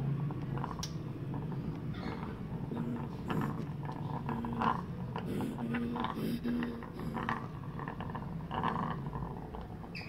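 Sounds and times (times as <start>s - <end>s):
parrots raspy calls: 1.9s - 9.2s.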